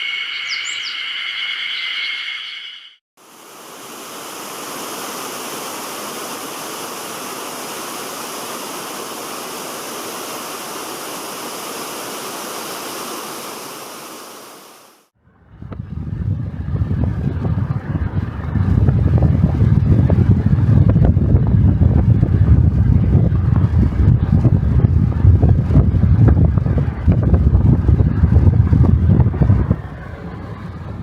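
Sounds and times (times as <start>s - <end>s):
flowing water rushing: 3.2s - 15.1s
wind buffeting microphone: 15.3s - 31.0s.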